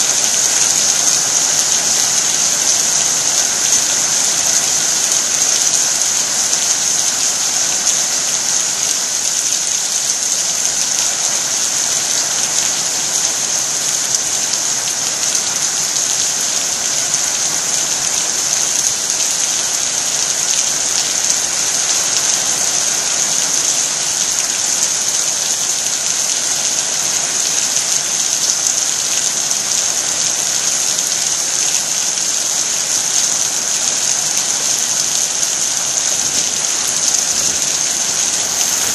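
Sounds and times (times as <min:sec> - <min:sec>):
heavy rain hissing: 0:00.0 - 0:38.9
raindrop hits: 0:33.8 - 0:38.9.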